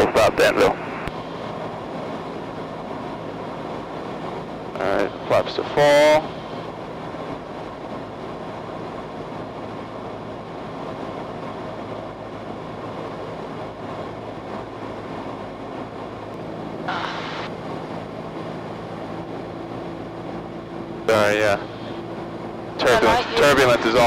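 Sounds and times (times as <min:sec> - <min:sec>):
aircraft engine running steadily: 0:00.0 - 0:24.0
airflow: 0:16.0 - 0:23.7.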